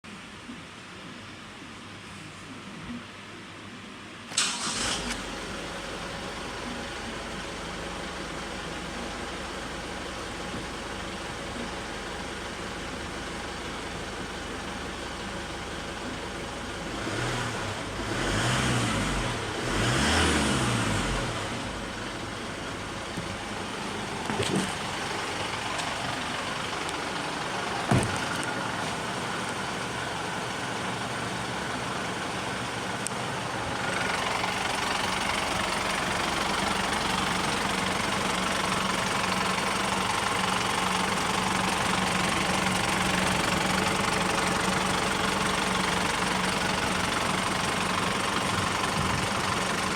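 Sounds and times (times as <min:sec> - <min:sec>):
engine idling and revving: 0:04.4 - 0:49.9.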